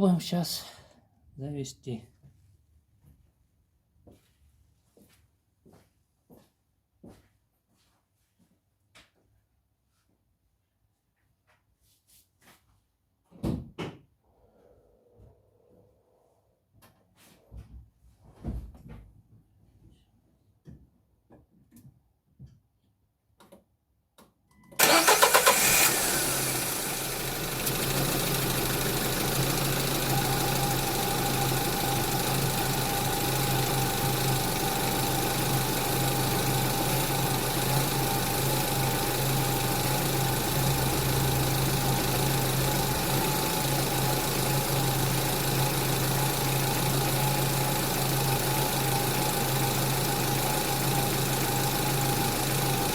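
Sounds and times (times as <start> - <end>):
car engine starting and idling: 24.8 - 52.9.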